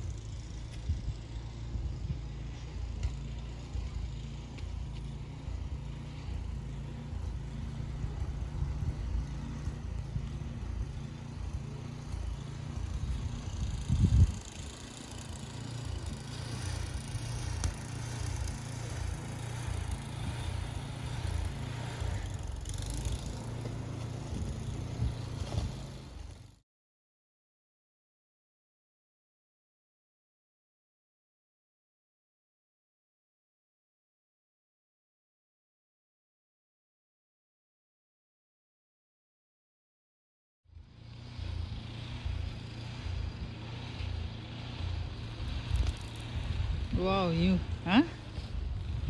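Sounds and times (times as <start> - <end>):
road and engine rumble: 0.0 - 26.6, 40.7 - 49.0.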